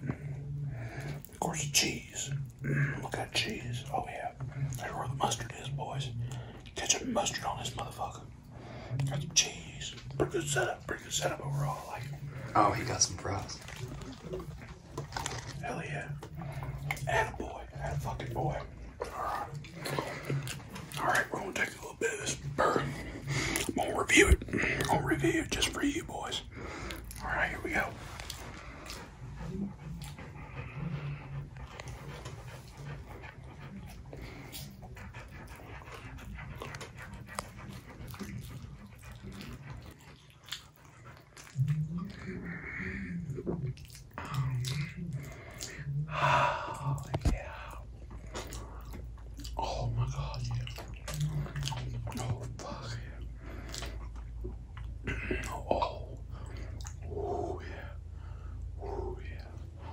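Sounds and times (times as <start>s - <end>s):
heavy breathing through nose: 0.0s - 1.4s, 11.5s - 39.3s, 44.2s - 50.3s, 52.8s - 59.9s
closed-mouth murmur: 0.0s - 59.9s
low hums: 0.0s - 59.9s
man chewing with wet clicks: 0.0s - 59.9s.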